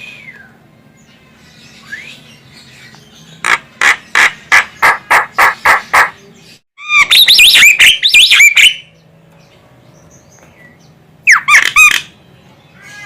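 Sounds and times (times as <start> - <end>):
bird whistled calls: 1.8 - 2.4, 6.8 - 8.9, 11.2 - 12.2.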